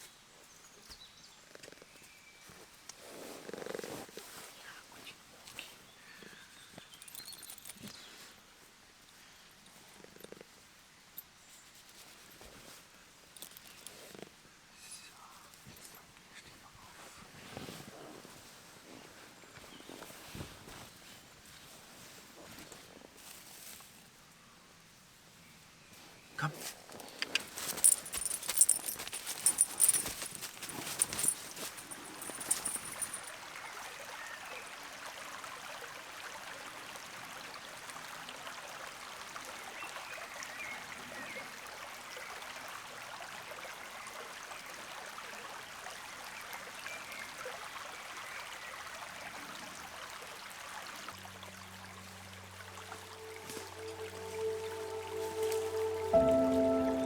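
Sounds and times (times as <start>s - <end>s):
steady outdoor hiss: 0.0s - 57.0s
jingling: 7.0s - 7.9s, 27.4s - 33.3s, 52.9s - 57.0s
music with held tones: 51.2s - 57.0s
faint high chirps: 52.7s - 57.0s.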